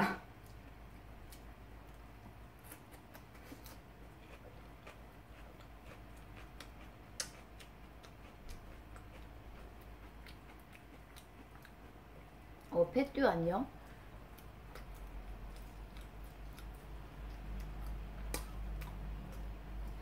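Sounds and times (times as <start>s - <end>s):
steady low hum: 0.0s - 20.0s
wet mouth clicks chewing: 2.6s - 11.9s, 14.3s - 20.0s.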